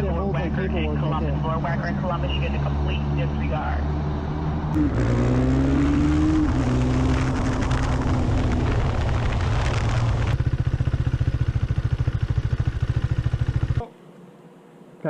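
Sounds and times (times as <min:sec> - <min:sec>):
vehicle engine droning: 0:00.0 - 0:14.0
motorcycle engine idling: 0:10.3 - 0:14.0.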